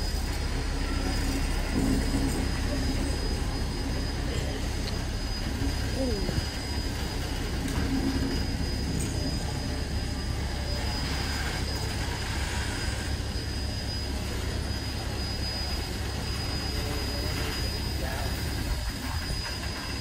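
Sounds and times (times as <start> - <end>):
steam train rumble and hiss: 0.0 - 20.0
thin high whine: 0.0 - 20.0.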